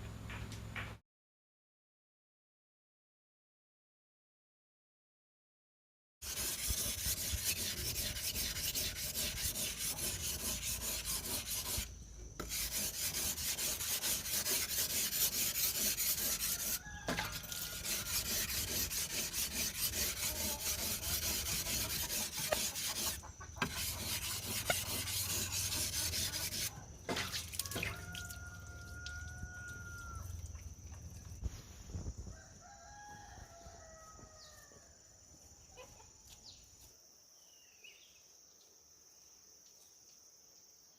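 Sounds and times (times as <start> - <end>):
rapid rubbing or scraping: 6.2 - 26.8
rooster crowing: 16.2 - 18.8, 27.6 - 30.4, 32.3 - 35.0.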